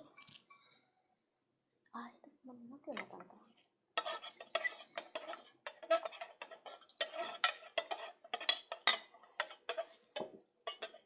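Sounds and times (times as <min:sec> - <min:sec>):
utensil clinking against dishware: 0:04.0 - 0:11.0.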